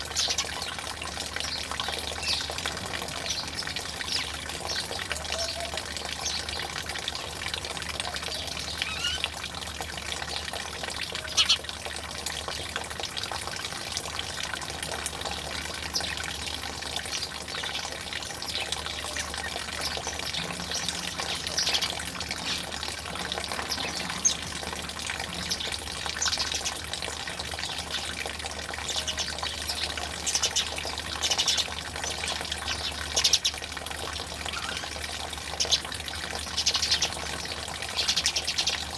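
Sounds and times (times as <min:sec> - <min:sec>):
water trickling and pouring: 0:00.0 - 0:38.9
bird chirps and calls: 0:08.3 - 0:09.3, 0:11.2 - 0:11.6.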